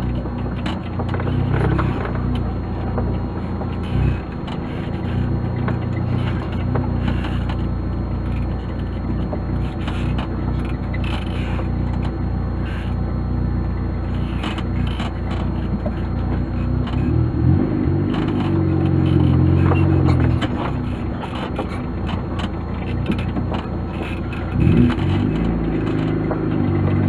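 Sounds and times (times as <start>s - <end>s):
engine droning: 0.0s - 27.0s
rattles and scrapes: 0.0s - 27.0s.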